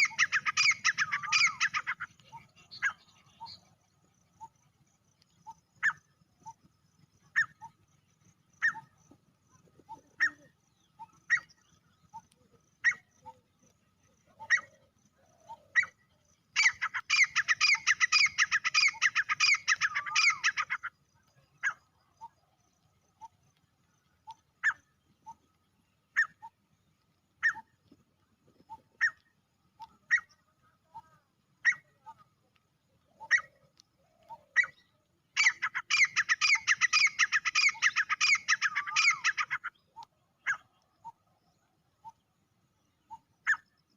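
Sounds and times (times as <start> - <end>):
francolin calling: 0.0 - 4.6, 8.6 - 22.4, 27.4 - 27.8, 28.6 - 32.4, 33.0 - 41.3.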